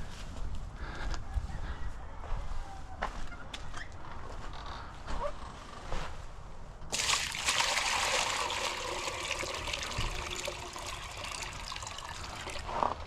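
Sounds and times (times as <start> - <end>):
water running: 6.9 - 13.0.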